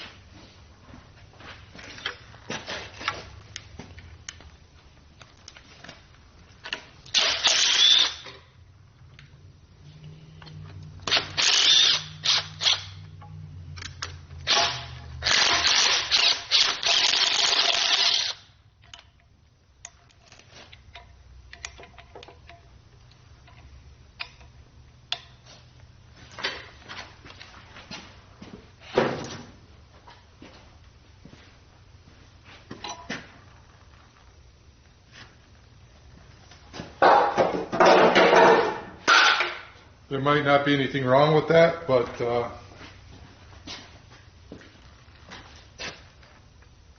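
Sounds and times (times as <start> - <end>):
power tool bursts: 7.1 - 8.3, 11.0 - 13.0, 14.4 - 18.5
tools and parts clattering: 37.0 - 39.7.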